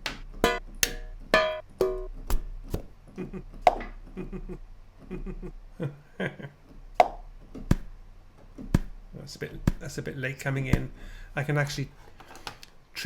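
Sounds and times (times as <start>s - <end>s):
rhythmic percussive clicks and knocks: 0.0s - 2.2s.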